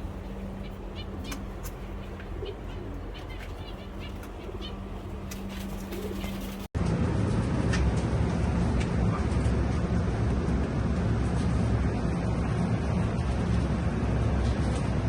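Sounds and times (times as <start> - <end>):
pigeons cooing: 0.0 - 6.7
small birds chirping: 0.0 - 6.7
steady low hum: 0.0 - 15.0.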